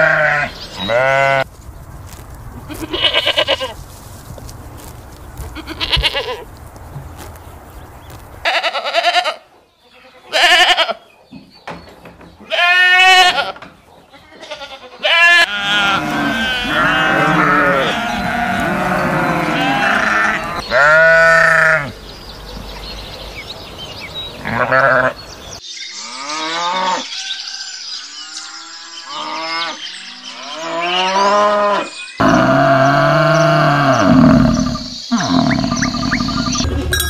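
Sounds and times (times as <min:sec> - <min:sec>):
sheep bleating: 0:00.0 - 0:01.4, 0:02.7 - 0:03.8, 0:05.6 - 0:06.4, 0:10.0 - 0:11.0, 0:14.4 - 0:21.9, 0:24.4 - 0:25.2.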